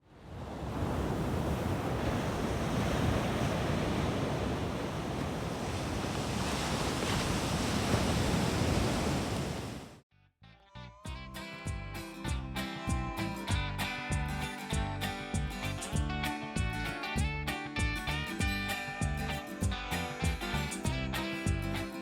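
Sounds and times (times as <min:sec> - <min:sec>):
surf breaking on beach: 0:00.1 - 0:10.0.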